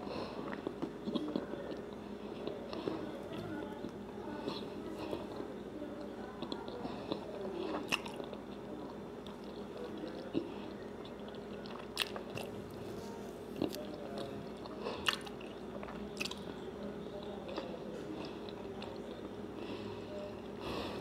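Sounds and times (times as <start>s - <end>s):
wet crunchy chewing: 6.4s - 12.8s, 13.5s - 16.5s.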